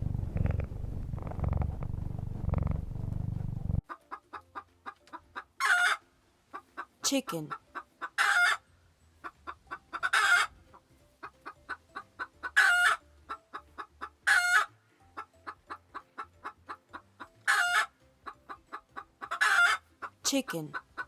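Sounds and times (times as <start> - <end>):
chicken clucking: 0.0 - 6.9, 9.2 - 10.8, 11.4 - 21.0
chicken squawk: 5.6 - 6.0, 8.1 - 8.6, 9.9 - 10.5, 12.5 - 13.0, 14.3 - 14.7, 16.4 - 17.9, 19.2 - 21.0.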